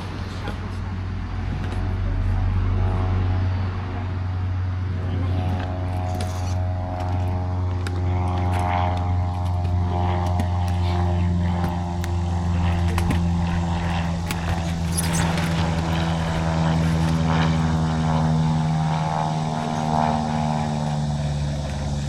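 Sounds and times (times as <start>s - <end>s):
vehicle engine drone: 0.0s - 22.0s.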